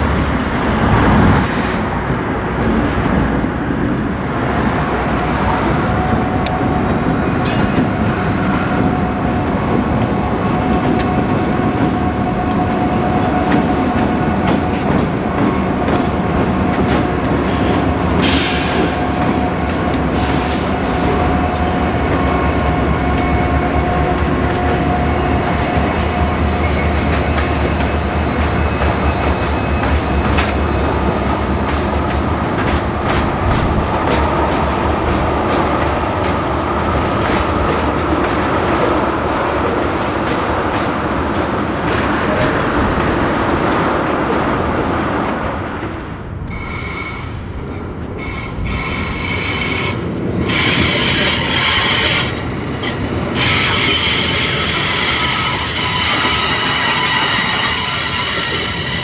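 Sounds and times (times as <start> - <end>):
train wheels rumbling on rails: 0.0 - 59.0
wheel squeal: 24.7 - 32.6, 48.2 - 59.0.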